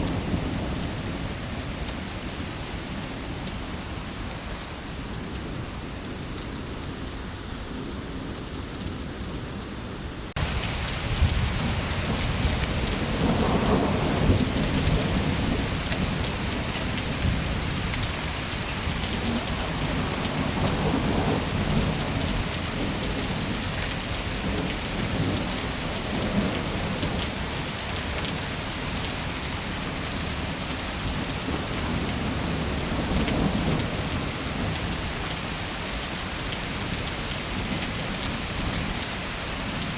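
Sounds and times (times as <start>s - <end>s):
heavy rain: 0.0s - 39.9s
rolling thunder: 10.4s - 23.5s.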